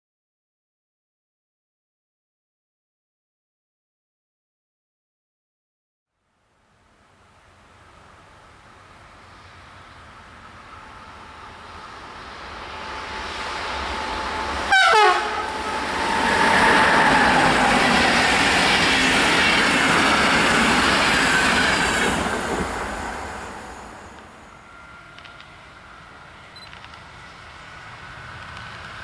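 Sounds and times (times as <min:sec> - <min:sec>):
train passing at speed: 0:06.2 - 0:29.0
train wheels rushing: 0:07.4 - 0:29.0
train horn blast: 0:14.2 - 0:16.9.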